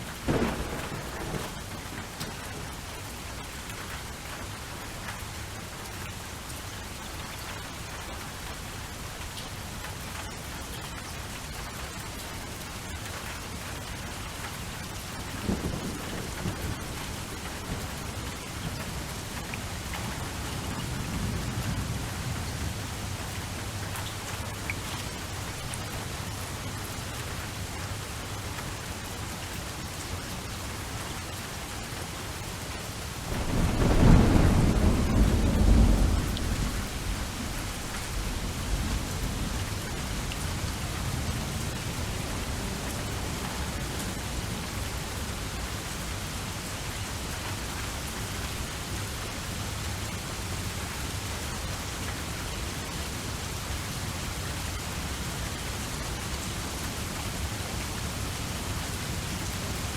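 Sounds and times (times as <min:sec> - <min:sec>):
thunderclap rumbling: 0:00.0 - 0:03.1, 0:15.4 - 0:23.2, 0:33.2 - 0:45.1
steady rain: 0:00.0 - 0:59.9.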